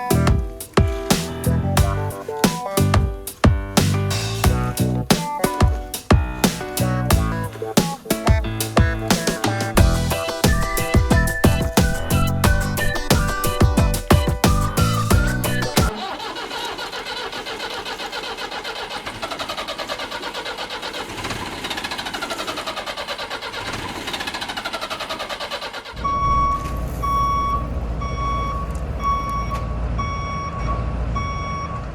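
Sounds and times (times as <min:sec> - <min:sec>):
truck engine rumbling: 0:00.0 - 0:31.9
rapidly pulsing gliding tones: 0:04.0 - 0:15.9
reversing alarm beeping: 0:26.0 - 0:31.9.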